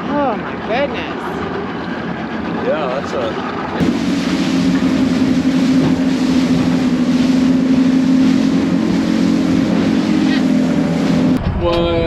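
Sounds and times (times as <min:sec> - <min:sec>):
boat engine droning: 0:00.0 - 0:11.6.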